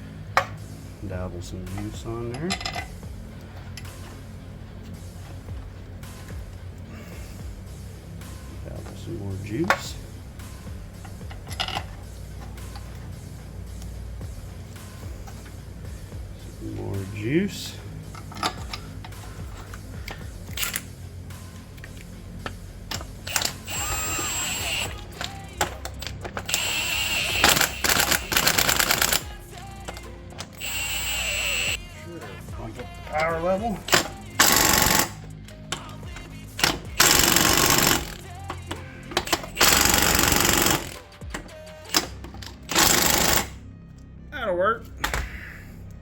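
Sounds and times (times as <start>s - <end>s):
impact wrench hammering: 10.7s - 13.0s, 18.1s - 20.9s, 22.4s - 31.8s, 33.1s - 43.6s
metallic clicks of hand tools: 18.1s - 20.9s, 21.8s - 29.2s, 33.2s - 43.5s.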